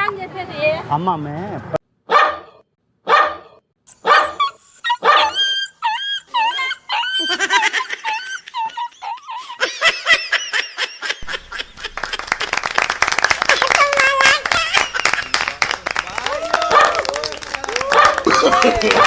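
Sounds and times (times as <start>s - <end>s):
dog barking: 2.1s - 7.1s, 16.7s - 17.0s, 17.9s - 18.2s
dog yelping and whimpering: 3.9s - 9.7s.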